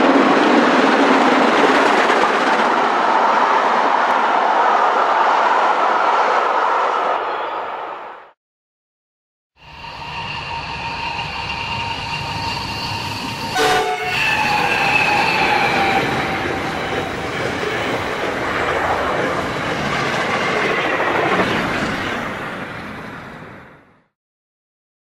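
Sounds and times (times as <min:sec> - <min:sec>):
locomotive horn: 0:13.5 - 0:15.0.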